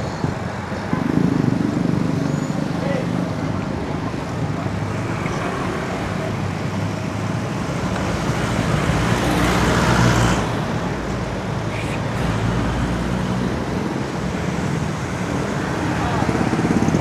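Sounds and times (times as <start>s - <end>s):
road traffic engine rumble: 0.0s - 17.0s.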